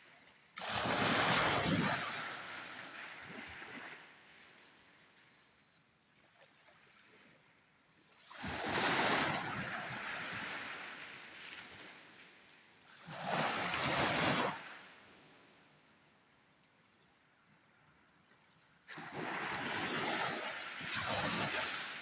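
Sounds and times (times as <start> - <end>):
sea waves breaking on shore: 0.1 - 5.4, 8.2 - 15.8, 18.8 - 22.0.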